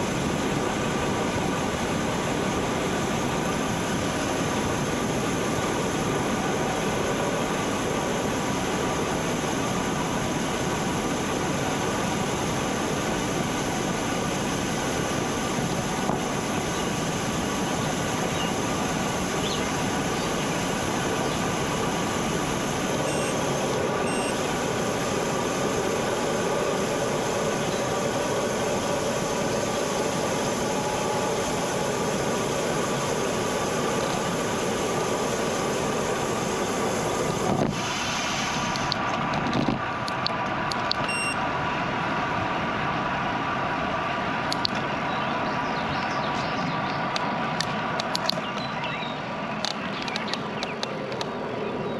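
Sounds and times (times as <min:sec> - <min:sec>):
wind on microphone: 0:00.0 - 0:39.9
bicycle tyre noise on road: 0:00.0 - 0:51.9.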